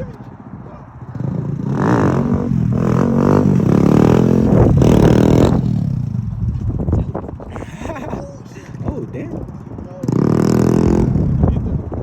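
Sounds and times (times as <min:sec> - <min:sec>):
motorcycle engine revving: 0:00.9 - 0:06.8, 0:09.9 - 0:12.0.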